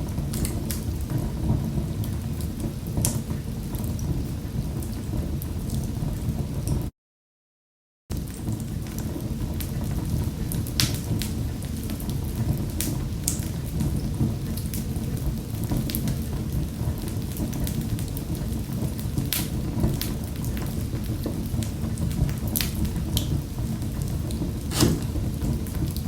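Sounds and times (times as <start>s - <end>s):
wood fire crackling: 8.3s - 26.0s.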